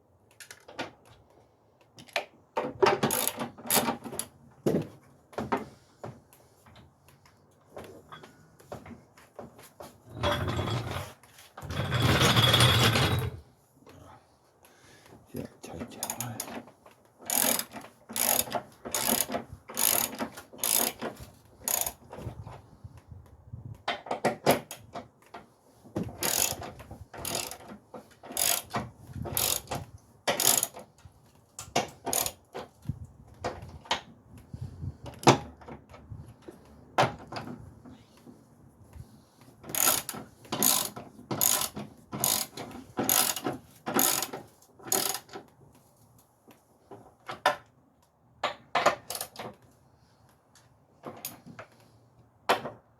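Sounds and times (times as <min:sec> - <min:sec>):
ratchet wrench clicking: 0:17.3 - 0:21.0, 0:21.7 - 0:22.0, 0:26.2 - 0:26.6, 0:27.2 - 0:27.6, 0:28.4 - 0:28.7, 0:29.4 - 0:29.7, 0:30.3 - 0:30.8, 0:39.8 - 0:42.5, 0:43.1 - 0:43.4, 0:44.0 - 0:44.3.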